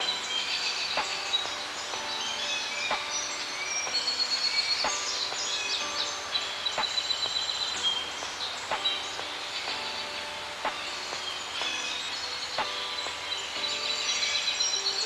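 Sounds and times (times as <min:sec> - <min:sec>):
birds chirping and singing: 0:00.0 - 0:15.0
steady background hiss: 0:00.0 - 0:15.0.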